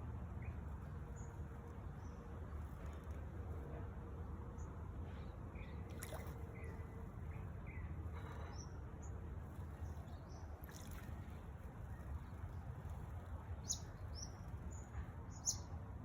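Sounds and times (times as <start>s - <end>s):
small birds chirping: 4.5s - 15.8s.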